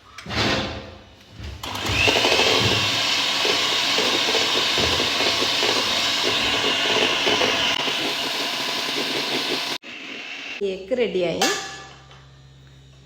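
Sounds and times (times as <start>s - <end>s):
electric hand mixer whining: 1.6s - 9.8s.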